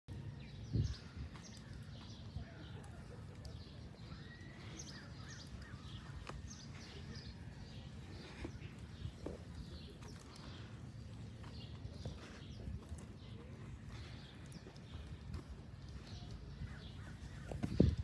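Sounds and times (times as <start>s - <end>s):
small birds chirping: 0.1s - 18.0s.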